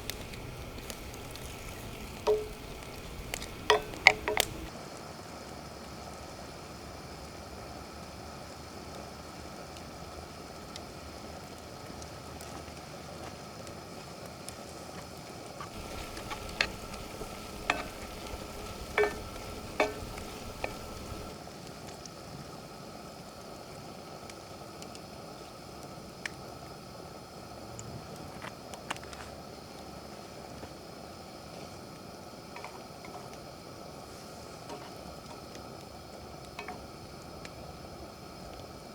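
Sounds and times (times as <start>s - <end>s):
food sizzling: 0.0s - 4.7s, 15.7s - 21.4s.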